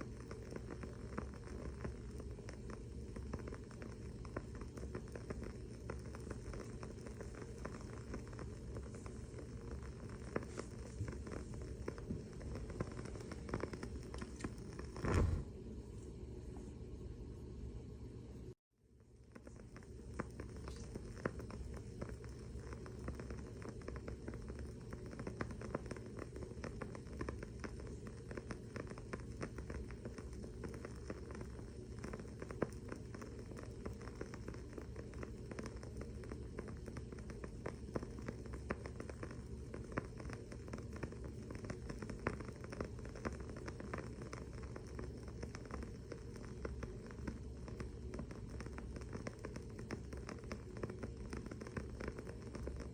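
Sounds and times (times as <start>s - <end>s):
candle wick crackling: 0.0s - 17.0s, 19.0s - 52.9s
steady low hum: 0.0s - 52.9s.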